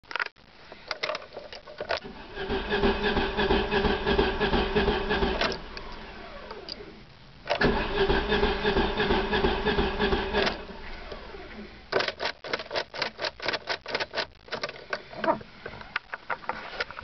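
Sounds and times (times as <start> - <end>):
car engine cranking: 2.0 - 6.9, 7.5 - 14.7
starter whine spinning down: 2.0 - 7.0, 7.6 - 11.7.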